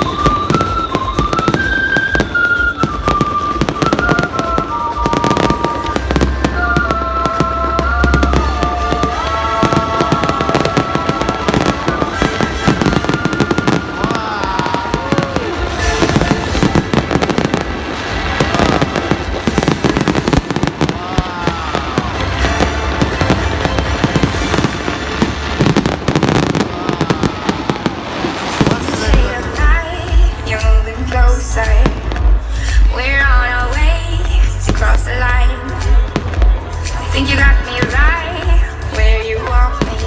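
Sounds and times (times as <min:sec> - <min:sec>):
fireworks crackles and bangs: 0:00.0 - 0:40.0
melodic music: 0:00.0 - 0:40.0.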